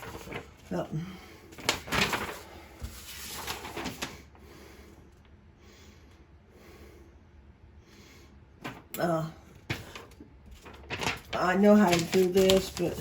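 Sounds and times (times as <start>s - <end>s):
rustling: 9.7s - 13.0s.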